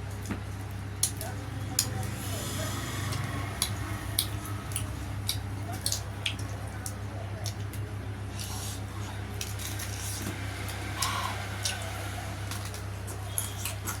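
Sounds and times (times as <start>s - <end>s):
steady low hum: 0.0s - 14.0s
wet chewing and smacking: 3.1s - 8.8s.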